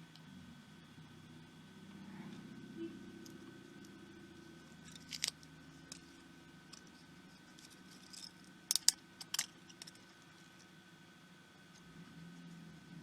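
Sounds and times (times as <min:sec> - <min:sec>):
faint steady hum: 0:00.0 - 0:13.0
tools clicking and tapping: 0:04.8 - 0:10.1.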